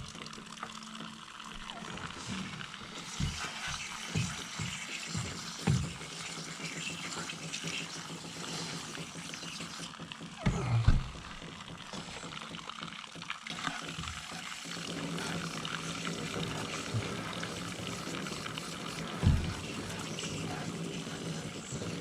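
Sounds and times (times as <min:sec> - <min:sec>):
hose water spraying: 0:01.5 - 0:22.0
low thumps: 0:10.4 - 0:12.0.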